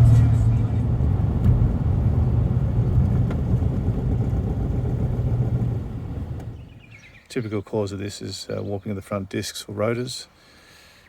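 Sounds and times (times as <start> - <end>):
car road and engine rumble: 0.0 - 7.3.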